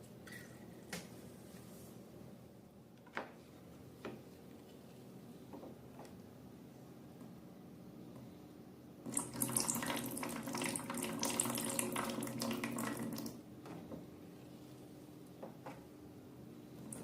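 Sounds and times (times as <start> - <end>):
tap water running into sink: 9.1 - 13.4.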